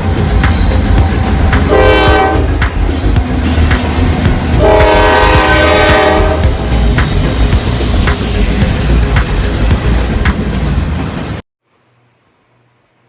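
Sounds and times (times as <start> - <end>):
moving train rumble: 0.0 - 11.4
locomotive air horn: 1.6 - 2.6, 4.5 - 6.5.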